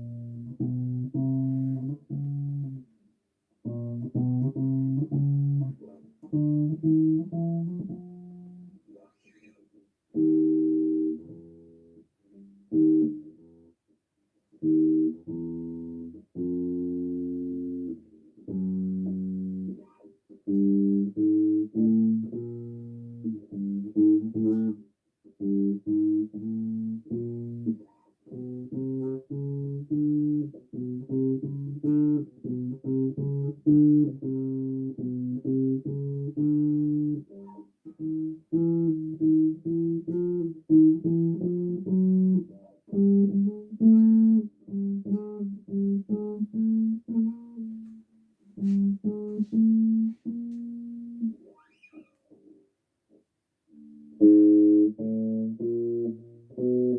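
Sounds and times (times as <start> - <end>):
bass guitar plucked notes: 0.0 - 2.9, 3.7 - 8.7, 28.4 - 37.2, 38.0 - 51.4.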